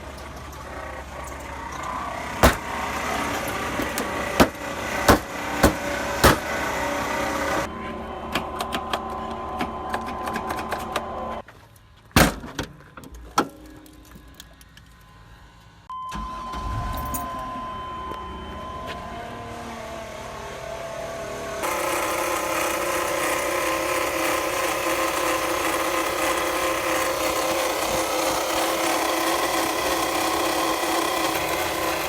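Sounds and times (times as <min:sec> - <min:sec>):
van engine running: 0:00.0 - 0:11.4.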